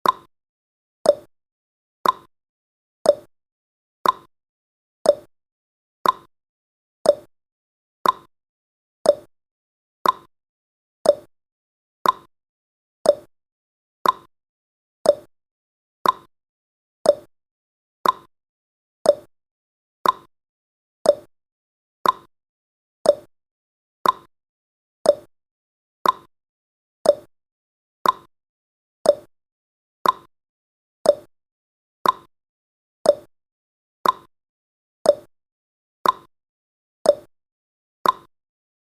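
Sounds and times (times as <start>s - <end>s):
timer ticking: 0.0s - 0.3s, 1.1s - 1.3s, 2.0s - 2.3s, 3.1s - 3.3s, 4.0s - 4.3s, 5.1s - 5.3s, 6.0s - 6.3s, 7.0s - 7.3s, 8.0s - 8.3s, 9.0s - 9.3s, 10.0s - 10.3s, 11.0s - 11.3s, 12.0s - 12.3s, 13.0s - 13.3s, 14.0s - 14.3s, 15.0s - 15.3s, 16.0s - 16.3s, 17.0s - 17.3s, 18.0s - 18.3s, 19.0s - 19.3s, 20.0s - 20.3s, 21.0s - 21.3s, 22.0s - 22.3s, 23.0s - 23.3s, 24.0s - 24.3s, 25.0s - 25.3s, 26.0s - 26.3s, 27.0s - 27.3s, 28.0s - 28.3s, 29.0s - 29.3s, 30.0s - 30.3s, 31.0s - 31.3s, 32.0s - 32.3s, 33.0s - 33.3s, 34.0s - 34.3s, 35.1s - 35.3s, 36.0s - 36.3s, 37.1s - 37.3s, 38.0s - 38.3s.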